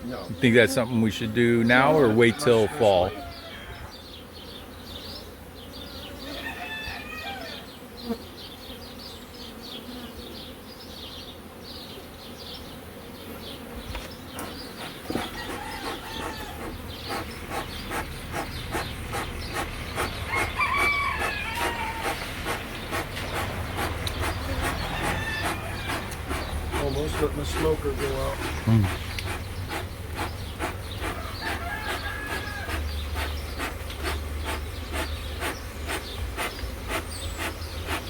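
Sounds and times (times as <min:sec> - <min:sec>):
honeybees buzzing: 0:00.0 - 0:38.0
chicken calls: 0:01.5 - 0:04.0, 0:06.2 - 0:07.7, 0:14.4 - 0:38.0.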